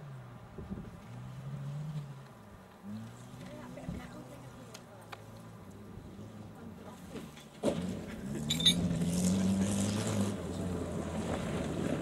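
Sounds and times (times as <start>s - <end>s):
car engine revving: 7.7s - 12.0s
metallic clink: 8.4s - 8.9s.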